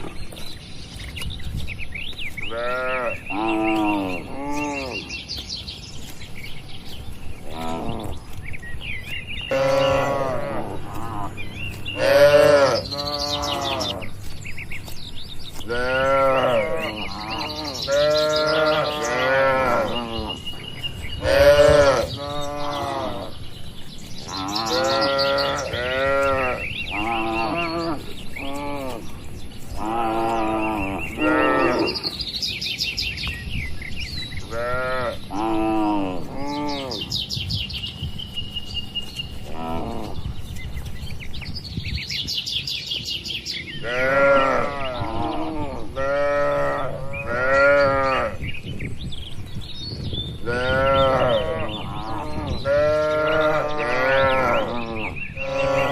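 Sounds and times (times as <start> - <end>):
cattle mooing: 7.5 - 8.2, 9.5 - 14.1, 15.7 - 20.4, 21.2 - 23.3, 24.2 - 29.1, 29.8 - 32.2, 43.8 - 48.4, 50.5 - 55.9.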